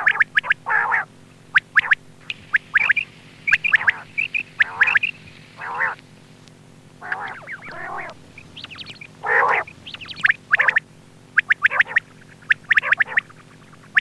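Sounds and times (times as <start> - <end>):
quail calling: 0.0 - 6.0, 7.0 - 14.0.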